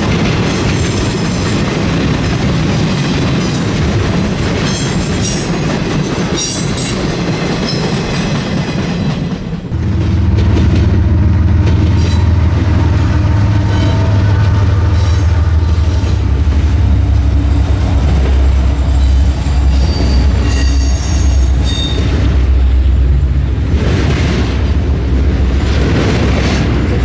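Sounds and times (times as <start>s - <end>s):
freight train rumbling on rails: 0.0s - 27.0s
high-pitched wheel squeals: 18.9s - 22.1s.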